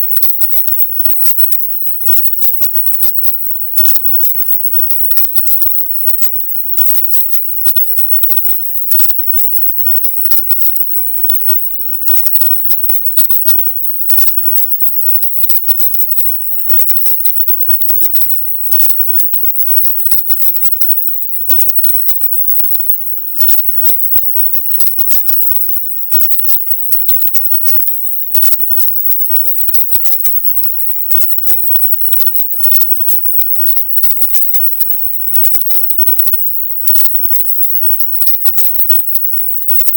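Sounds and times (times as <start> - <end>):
crackling clicks: 0.0 - 39.9
high-pitched stuttering hiss: 0.0 - 39.9.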